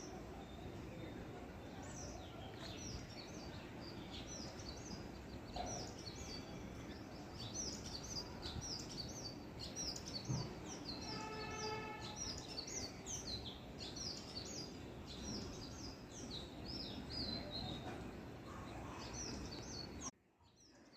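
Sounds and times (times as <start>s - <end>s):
low background noise: 0.0s - 20.9s
small birds chirping: 0.0s - 20.9s.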